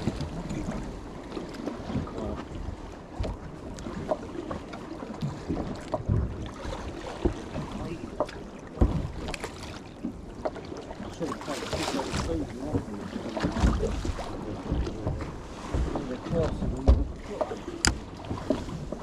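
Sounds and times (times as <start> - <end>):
knocks and thumps on boat: 0.0 - 19.0.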